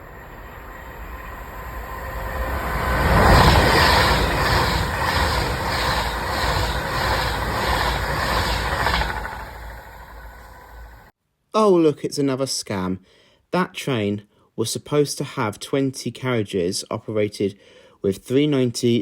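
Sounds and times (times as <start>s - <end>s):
electric train passing at speed: 0.0s - 11.1s
wheelsets pulsing on rails: 0.0s - 11.1s.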